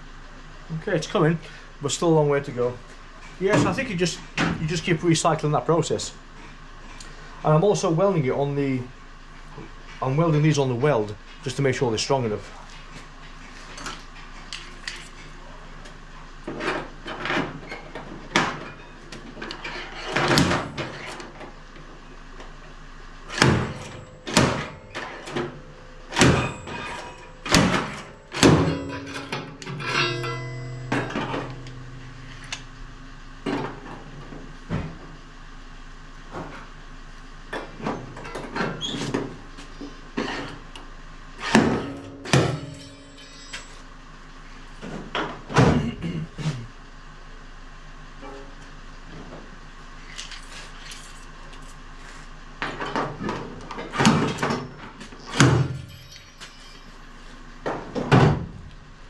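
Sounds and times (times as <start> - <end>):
slide hammer metallic knocks: 23.5 - 33.7
pitched buzz: 23.6 - 34.0.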